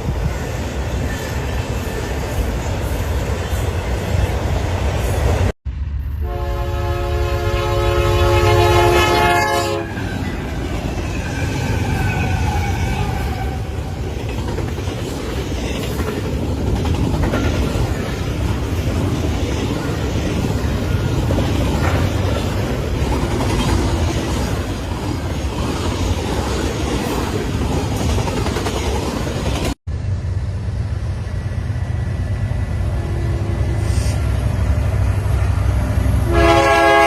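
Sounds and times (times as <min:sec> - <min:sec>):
train rumbling: 0:00.0 - 0:37.0
train horn chord: 0:06.2 - 0:10.1, 0:36.2 - 0:37.0.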